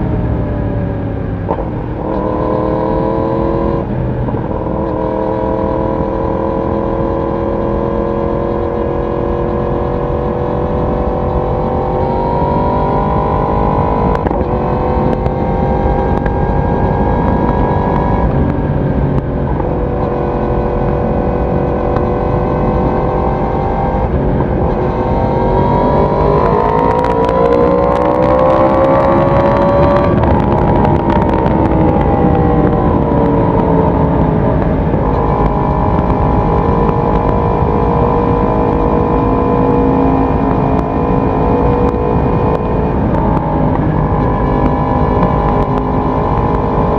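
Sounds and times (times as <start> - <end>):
motorcycle exhaust at speed: 0.0 - 46.9.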